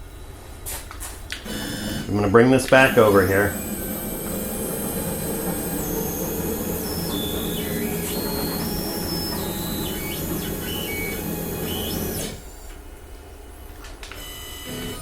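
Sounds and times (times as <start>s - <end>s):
steady low hum: 0.0s - 13.8s
stepper motors whining: 1.4s - 12.8s.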